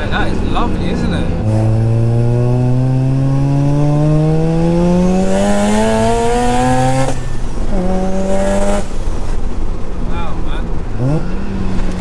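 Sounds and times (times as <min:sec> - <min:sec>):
rotary engine accelerating: 0:00.0 - 0:09.2.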